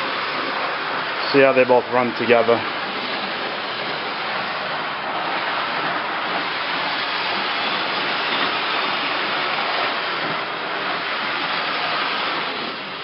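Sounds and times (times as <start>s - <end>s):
model trains rolling on track: 0.0s - 13.0s.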